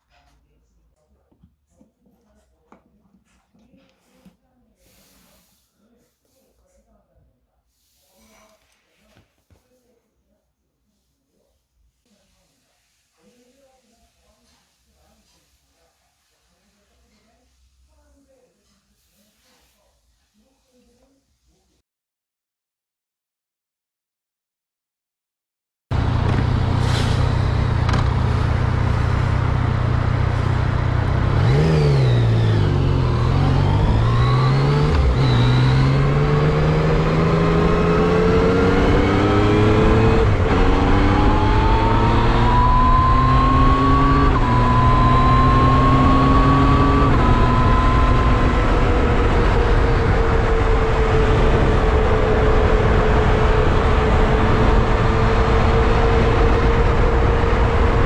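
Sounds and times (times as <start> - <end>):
motorcycle engine shifting gears: 25.9 - 58.0.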